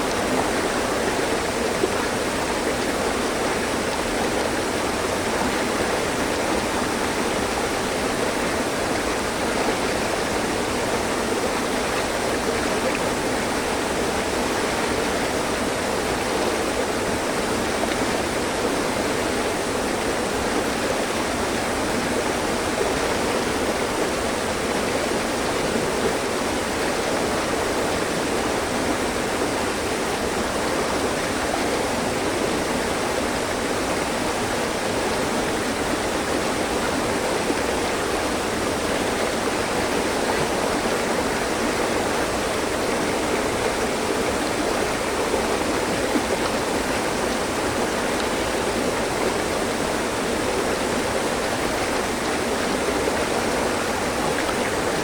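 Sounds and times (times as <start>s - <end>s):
stream flowing over rocks: 0.0s - 55.0s.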